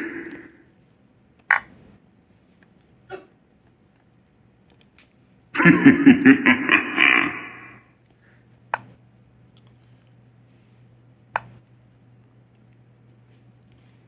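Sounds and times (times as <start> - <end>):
person laughing in pulses: 5.6 - 7.9.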